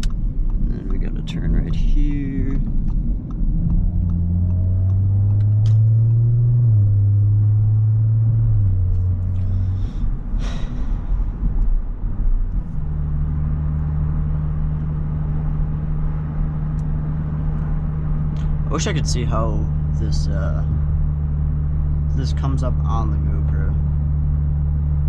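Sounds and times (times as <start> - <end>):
car engine droning in cabin: 0.0 - 25.0
sharp click: 2.6 - 6.2.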